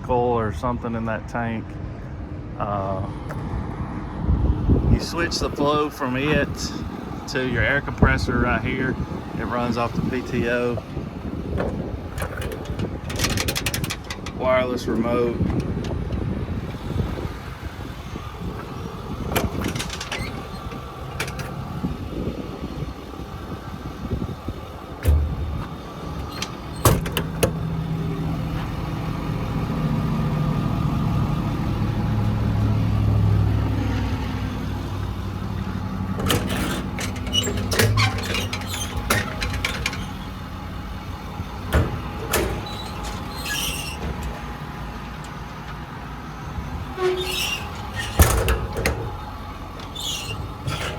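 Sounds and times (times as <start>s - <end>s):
truck diesel engine running: 2.0s - 50.9s
equipment clicks and clunks: 10.2s - 23.0s, 24.0s - 28.8s, 34.7s - 50.9s.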